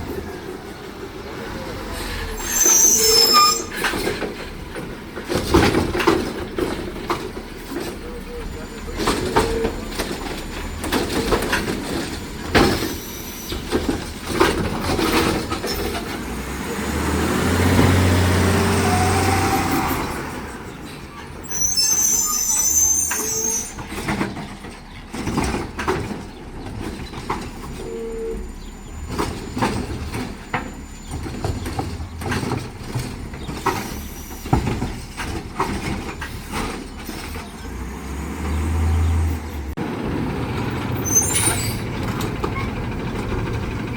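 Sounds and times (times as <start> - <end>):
diesel engine revving: 0.0 - 43.9
knocks and bangs from cart and arm: 4.0 - 7.9.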